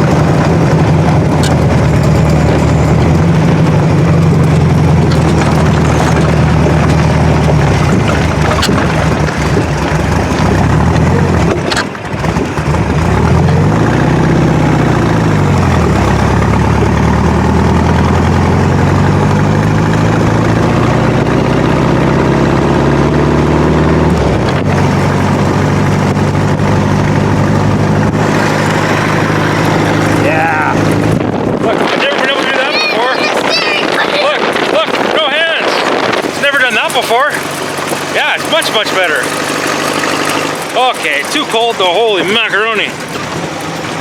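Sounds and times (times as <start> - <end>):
dune buggy engine driving: 0.0 - 44.0
wind rushing over microphone: 27.9 - 38.3.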